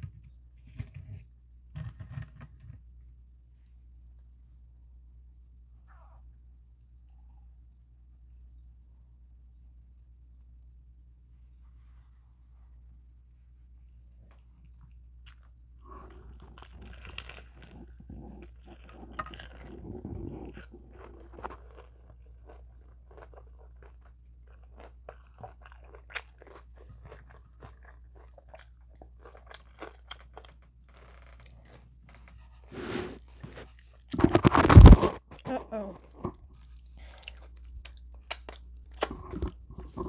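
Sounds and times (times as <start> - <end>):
steady low hum: 0.0 - 30.9
crunchy chewing of fried chicken: 14.4 - 40.0.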